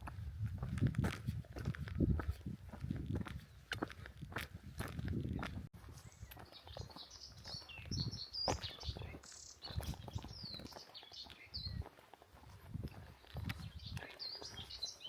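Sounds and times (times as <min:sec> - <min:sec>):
footsteps walking: 0:00.0 - 0:15.0
small birds singing: 0:05.2 - 0:15.0.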